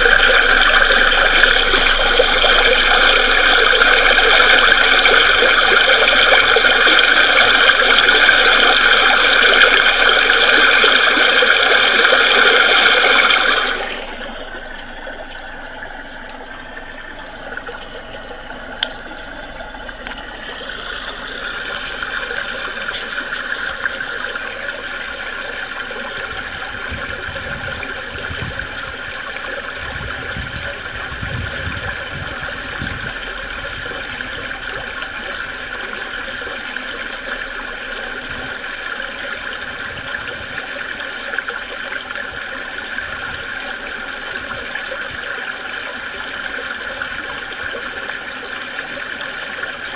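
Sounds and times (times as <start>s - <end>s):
low rumbles: 0.0s - 10.8s, 13.2s - 38.9s
creek babbling over stones: 0.0s - 49.9s.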